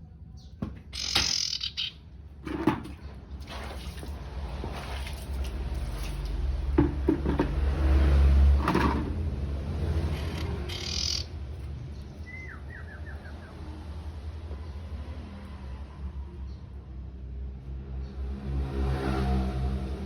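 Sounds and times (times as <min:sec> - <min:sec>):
songbird chirping: 0:00.0 - 0:02.1, 0:10.1 - 0:13.9
knocks: 0:06.8 - 0:07.6.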